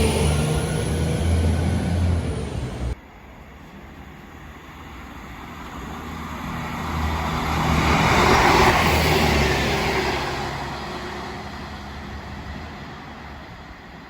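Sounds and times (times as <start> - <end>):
loud engine sound: 0.0 - 3.0
train engine hum: 0.0 - 14.0
train wheels rushing on rails: 0.0 - 14.0.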